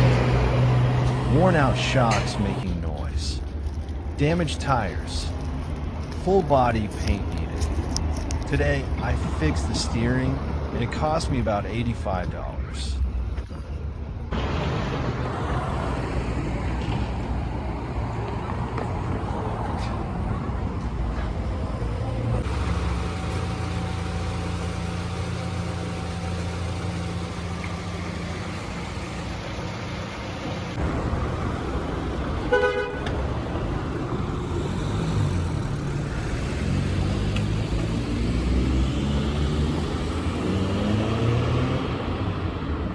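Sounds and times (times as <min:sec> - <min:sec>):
car engine and road noise: 0:00.0 - 0:42.9
car horn tooting: 0:32.5 - 0:33.2.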